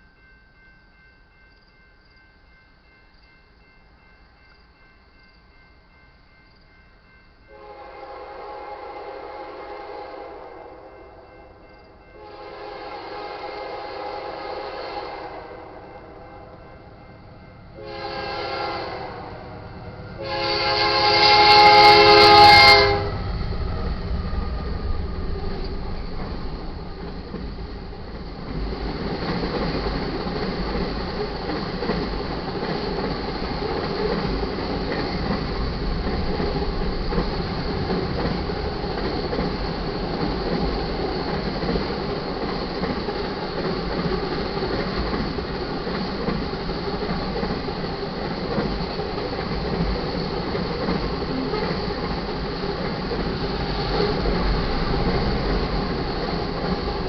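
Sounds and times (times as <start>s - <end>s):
train horn blasts: 7.5s - 11.3s, 12.1s - 16.9s, 17.7s - 23.7s
diesel locomotives rumbling: 7.5s - 57.0s
freight cars rolling on rails: 20.1s - 57.0s.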